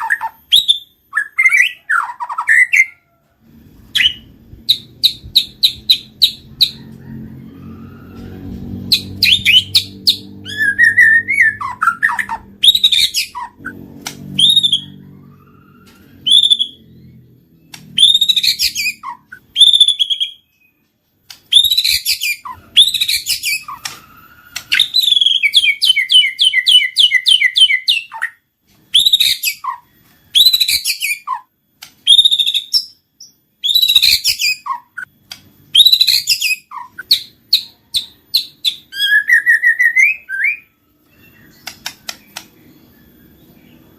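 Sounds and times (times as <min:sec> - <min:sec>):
bird singing whistles and chips: 0:21.4 - 0:31.4, 0:33.6 - 0:35.0.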